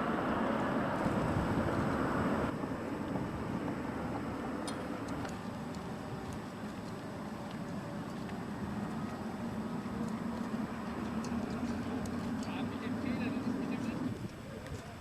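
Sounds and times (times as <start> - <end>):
distant jet engine rumble: 0.0 - 15.0.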